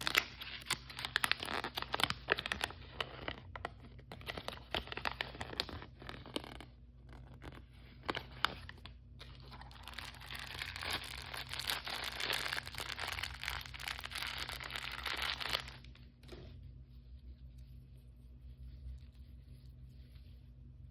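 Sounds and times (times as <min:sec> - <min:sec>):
plastic packaging crinkling: 0:00.0 - 0:06.7, 0:07.4 - 0:16.4.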